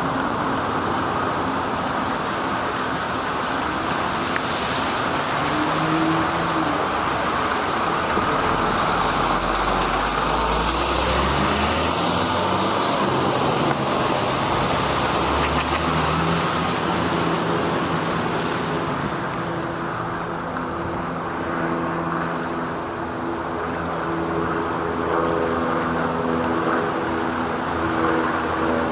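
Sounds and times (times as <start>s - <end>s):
car and truck engines humming: 0.0s - 21.3s
tyres hissing on wet road: 0.0s - 28.9s.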